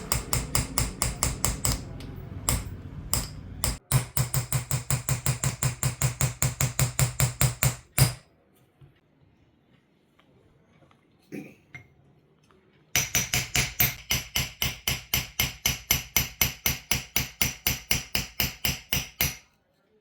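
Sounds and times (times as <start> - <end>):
hammer tapping chisel on metal: 0.0 - 8.2, 13.0 - 19.5.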